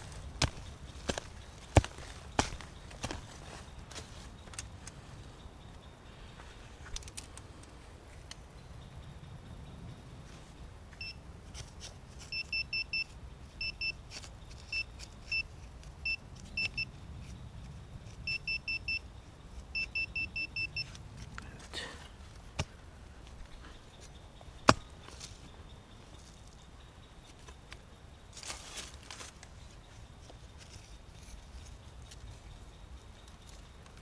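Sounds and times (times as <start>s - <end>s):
metal detector beeping: 12.3s - 14.0s, 14.7s - 16.9s, 18.3s - 19.1s, 19.7s - 21.0s.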